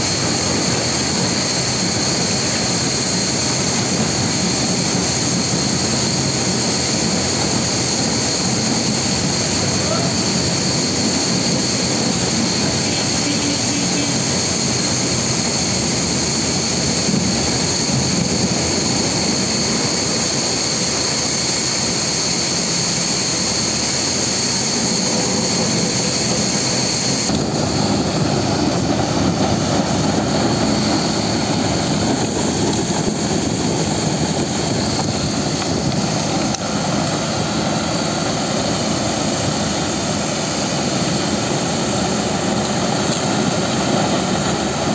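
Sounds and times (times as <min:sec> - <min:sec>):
high steady whine: 0:00.0 - 0:44.9
wood chipper running: 0:27.3 - 0:44.9.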